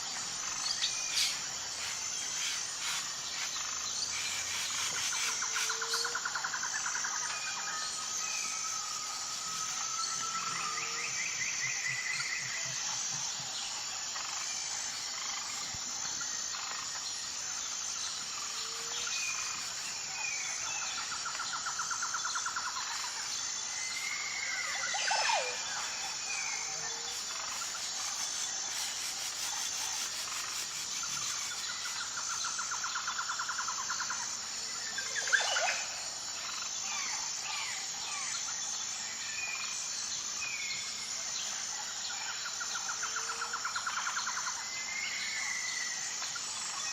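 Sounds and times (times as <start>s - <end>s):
insects chirping: 0.0s - 46.9s.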